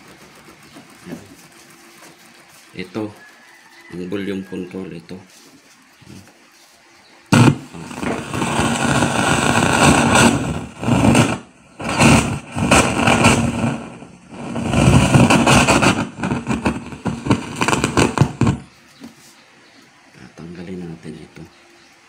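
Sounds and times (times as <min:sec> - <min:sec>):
speaker crackling and rumbling: 0:07.3 - 0:18.8.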